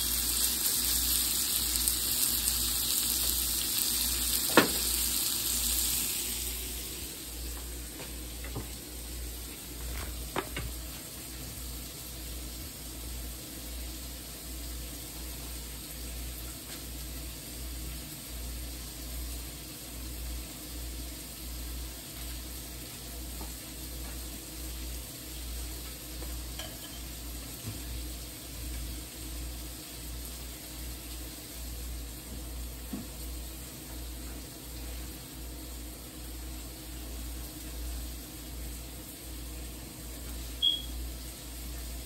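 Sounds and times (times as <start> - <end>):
chicken sizzling in a pan: 0.0 - 42.0.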